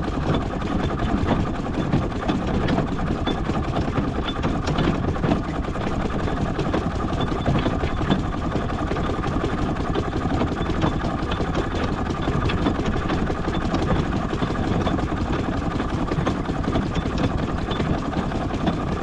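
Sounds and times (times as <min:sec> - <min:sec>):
small mechanical clicks and knocks: 0:10.6 - 0:19.0.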